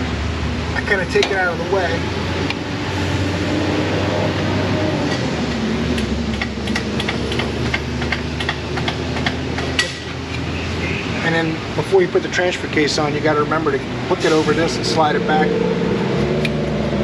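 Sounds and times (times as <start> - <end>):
metallic clicks and taps: 5.9 - 10.4.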